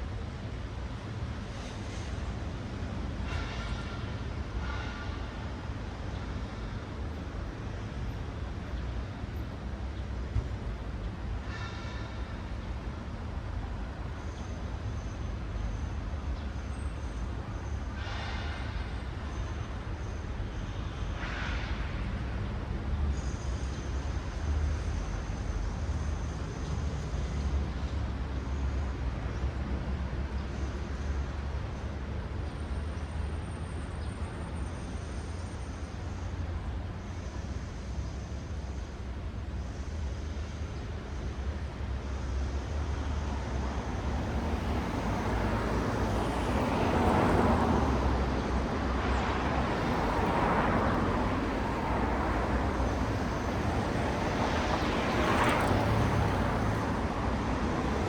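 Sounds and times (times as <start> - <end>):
low rumble of city traffic: 0.0 - 58.0
cars passing: 42.9 - 58.0.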